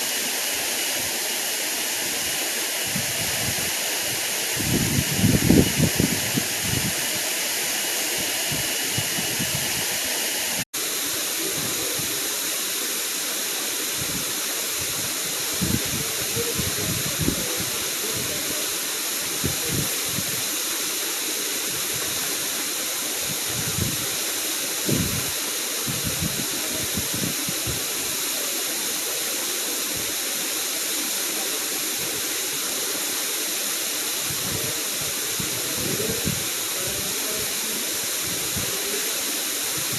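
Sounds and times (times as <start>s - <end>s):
waterfall rushing: 0.0s - 39.9s
wind rumble on microphone: 2.9s - 7.2s, 8.4s - 10.0s, 14.0s - 18.5s, 19.4s - 20.4s, 23.3s - 24.1s, 24.8s - 27.8s, 34.2s - 37.4s.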